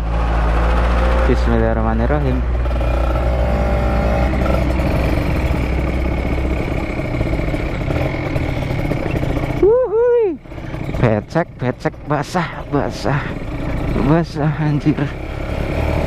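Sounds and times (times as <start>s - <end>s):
motorcycle engine running: 0.0s - 16.0s
person whooping: 9.6s - 10.4s.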